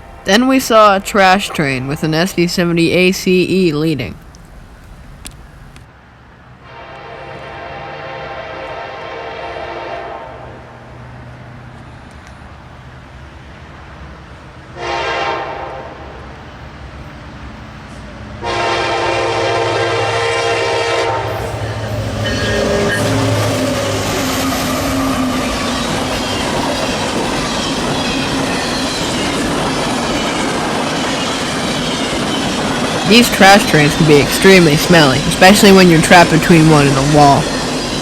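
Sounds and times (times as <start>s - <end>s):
locomotive engine: 0.0s - 5.9s, 19.3s - 38.0s
locomotive air horn blasts: 6.6s - 10.6s, 14.8s - 16.0s, 18.4s - 25.7s
train wheels clattering on rails: 21.6s - 38.0s.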